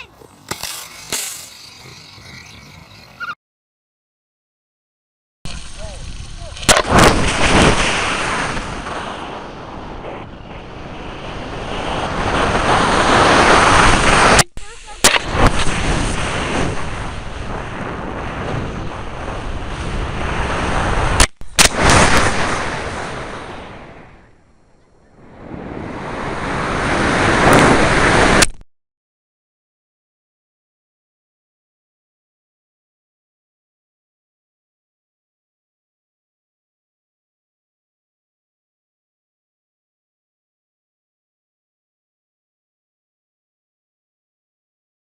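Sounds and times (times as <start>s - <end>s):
sharp cracks: 0.4s - 2.0s, 5.5s - 9.0s, 13.8s - 16.0s, 21.2s - 22.7s
water rocket rush of air: 0.4s - 2.7s, 5.5s - 24.2s, 25.3s - 28.5s.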